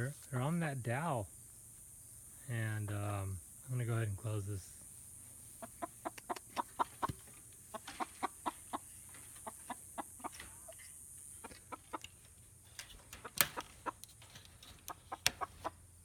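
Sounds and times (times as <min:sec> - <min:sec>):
hens clucking: 0:04.8 - 0:16.0.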